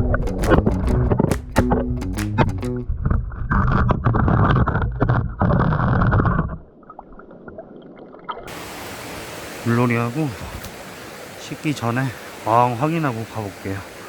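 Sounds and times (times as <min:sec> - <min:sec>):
muffled water splashing: 0:00.0 - 0:05.4, 0:06.0 - 0:14.0.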